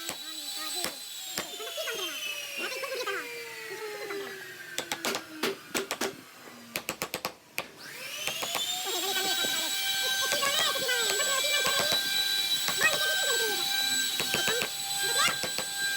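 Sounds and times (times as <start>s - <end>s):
power tool motor whine: 0.0s - 6.7s, 7.8s - 15.9s
sharp clicks and knocks: 6.8s - 7.7s.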